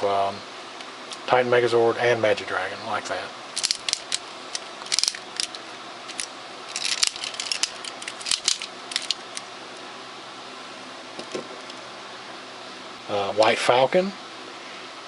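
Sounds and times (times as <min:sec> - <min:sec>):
steady low hiss: 0:00.0 - 0:15.0
plastic toy parts clicking: 0:03.6 - 0:09.4.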